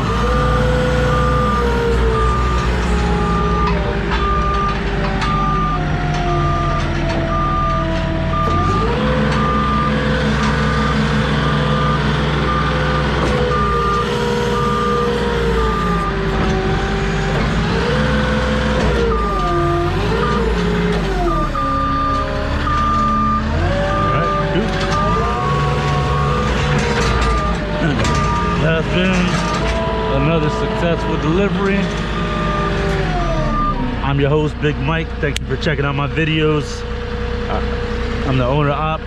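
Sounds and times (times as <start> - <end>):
reversing alarm beeping: 0.0 - 34.2
forklift engine running: 0.0 - 39.0.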